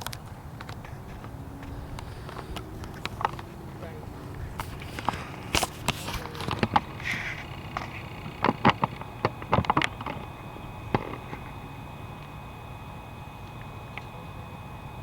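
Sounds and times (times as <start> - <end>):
sharp clicks and knocks: 0.0 - 3.6, 4.6 - 11.6
steady low hum: 0.0 - 15.0.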